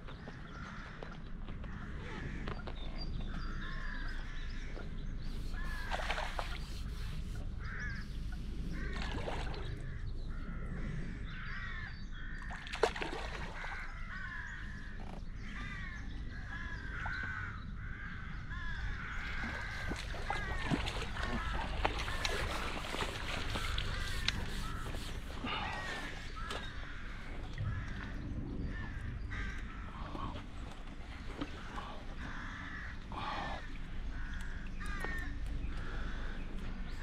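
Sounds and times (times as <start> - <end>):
birds calling: 0.0 - 37.0
fish splashing at the surface: 5.8 - 6.6, 12.6 - 13.7, 19.4 - 26.6.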